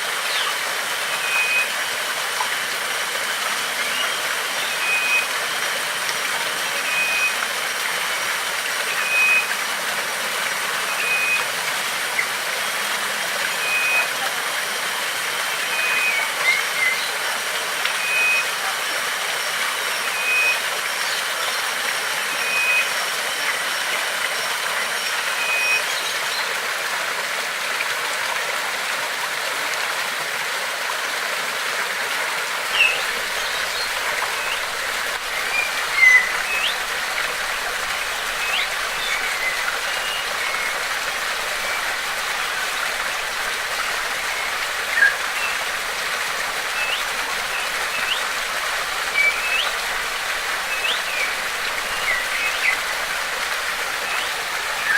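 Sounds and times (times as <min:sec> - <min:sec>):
flowing water rushing: 0:00.0 - 0:54.9
birds chirping and whistling: 0:08.8 - 0:09.5, 0:10.8 - 0:11.5, 0:15.7 - 0:17.2, 0:25.0 - 0:26.5, 0:32.7 - 0:42.7, 0:43.3 - 0:45.8, 0:46.6 - 0:54.9.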